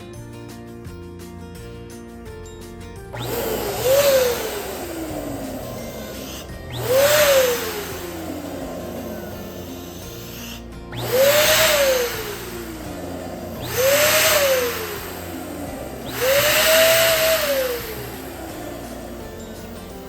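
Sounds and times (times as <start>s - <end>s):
electric balloon pump blowing air: 3.1s - 20.0s.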